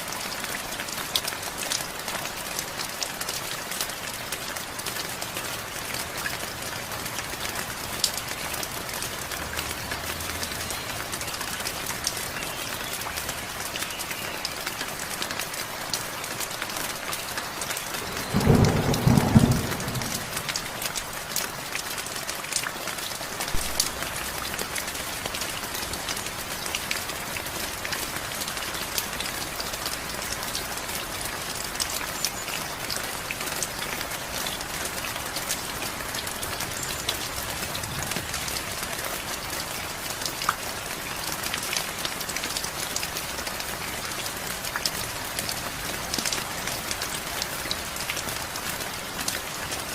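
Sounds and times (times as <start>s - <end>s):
heavy rain falling: 0.0s - 49.9s
sharp raindrop ticks: 8.0s - 27.1s
thunder clap: 18.0s - 20.7s.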